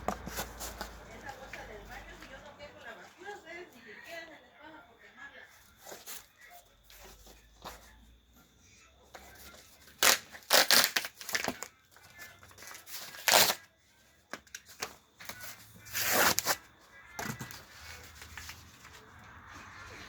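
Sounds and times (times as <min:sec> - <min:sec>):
kindling crunching and tearing: 0:10.0 - 0:11.7, 0:13.0 - 0:13.6.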